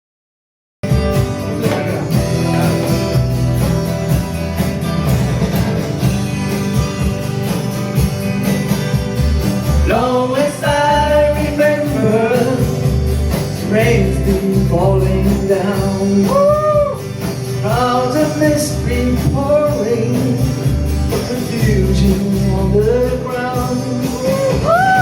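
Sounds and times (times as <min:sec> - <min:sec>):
country-rock band with guitar: 0:00.8 - 0:25.0
person singing: 0:09.8 - 0:13.0, 0:13.6 - 0:25.0.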